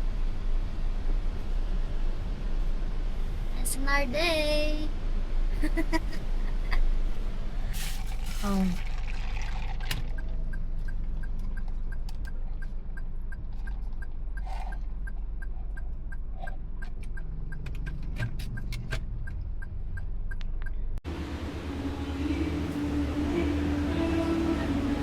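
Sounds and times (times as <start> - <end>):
vehicle rumble: 0.0 - 25.0
scattered clicks: 9.9 - 20.8
faint regular ticking: 10.1 - 21.0.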